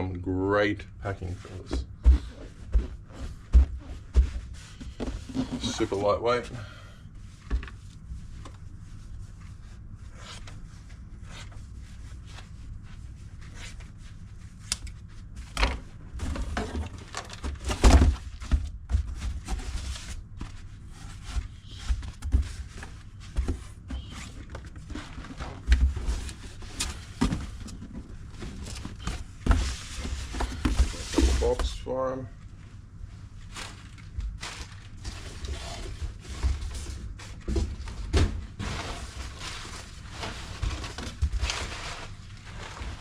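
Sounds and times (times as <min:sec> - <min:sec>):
knocks and thumps of packing: 0:01.5 - 0:05.9, 0:15.6 - 0:20.6.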